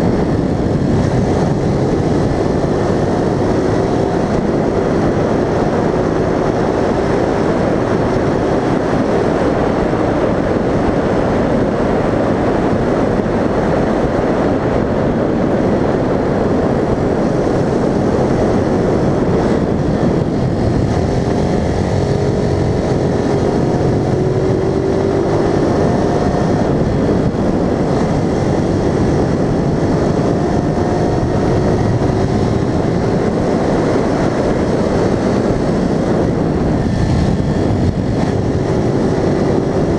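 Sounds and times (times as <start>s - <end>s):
road and wind noise: 0.0s - 39.9s
vehicle engine: 0.0s - 39.9s.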